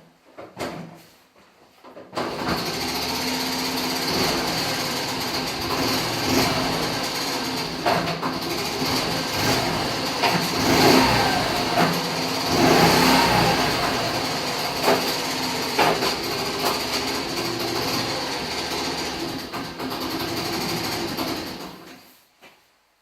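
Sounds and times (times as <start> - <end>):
motorcycle engine revving: 2.2 - 21.8
sharp engine knocks: 14.8 - 16.9.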